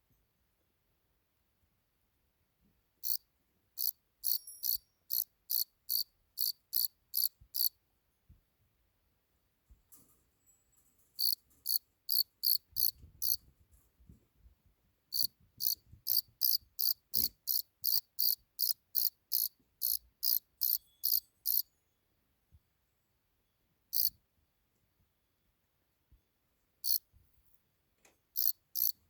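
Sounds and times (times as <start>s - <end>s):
cricket chirping: 3.0s - 3.2s, 3.8s - 7.7s, 11.2s - 13.4s, 15.1s - 21.7s, 23.9s - 24.1s, 28.4s - 29.0s.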